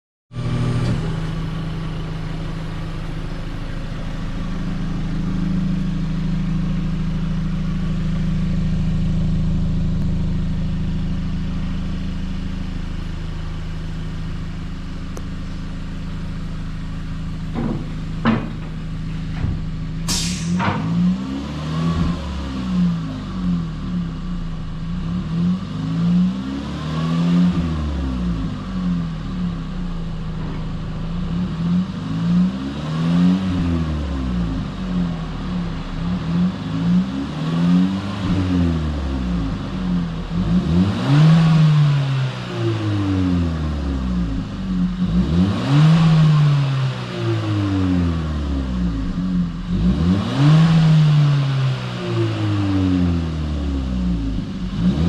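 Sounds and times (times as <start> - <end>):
car engine idling: 0.3 - 21.4, 22.3 - 26.4, 27.5 - 45.4, 46.4 - 55.0
engine revving in throttle blips: 17.5 - 55.0.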